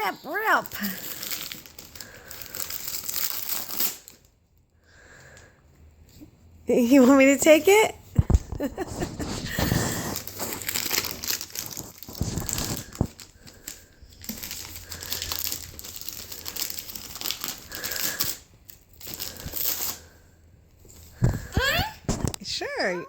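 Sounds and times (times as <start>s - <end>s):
wrapping paper crinkling and tearing: 0.3s - 4.4s, 8.9s - 20.2s.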